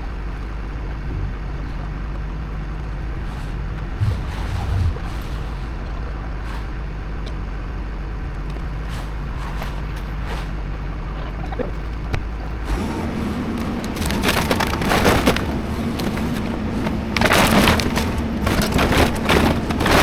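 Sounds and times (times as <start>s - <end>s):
excavator engine revving: 0.0s - 20.0s
debris crunching and splintering: 11.6s - 20.0s.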